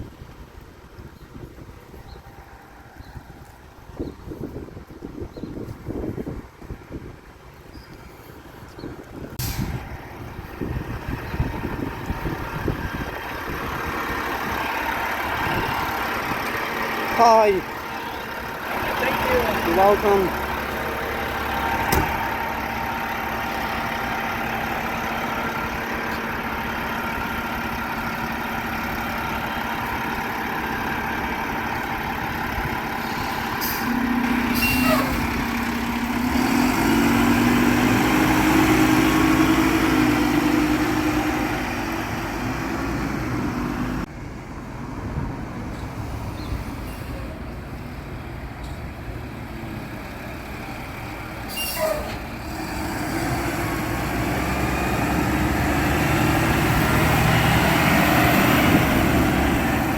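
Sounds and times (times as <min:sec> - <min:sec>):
short sharp hisses: 0:09.4 - 0:09.8
garbage truck engine running: 0:09.4 - 0:44.1.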